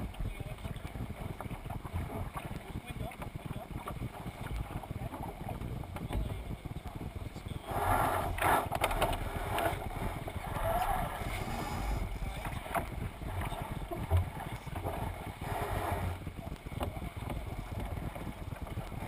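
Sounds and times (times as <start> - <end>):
water rushing along hull: 0.0 - 19.0
wind buffeting microphone: 0.0 - 19.0
boat knocks: 7.7 - 18.8.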